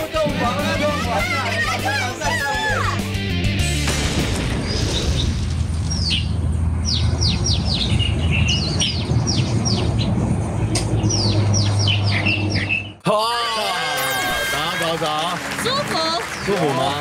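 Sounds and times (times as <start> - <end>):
low hum: 3.9 - 12.9
small birds chirping: 4.7 - 13.0.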